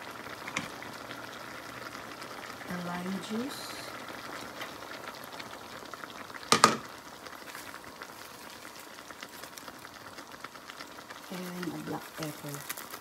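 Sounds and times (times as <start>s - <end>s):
food sizzling in a wok: 0.0s - 13.0s.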